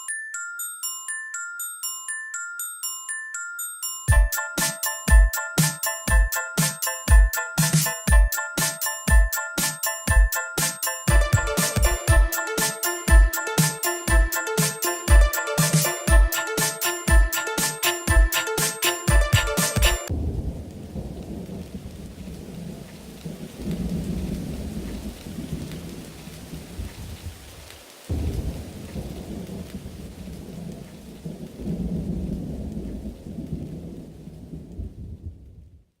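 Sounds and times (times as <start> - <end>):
rolling thunder: 20.1 - 26.7, 28.1 - 35.8
rain: 20.1 - 36.0.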